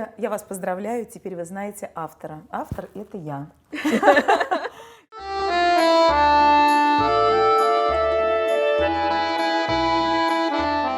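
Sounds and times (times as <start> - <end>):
accordion folk tune: 5.1 - 10.9.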